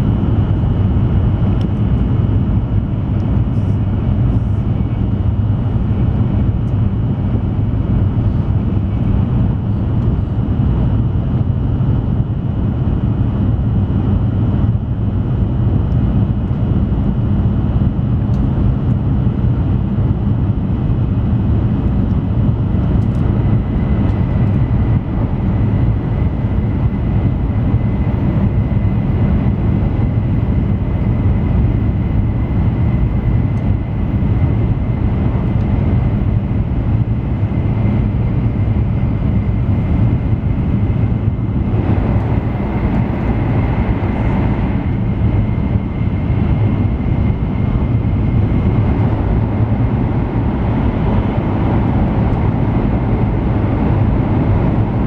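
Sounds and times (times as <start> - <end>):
faint steady whine: 0.0 - 55.0
train wheels and rushing air: 18.5 - 55.0.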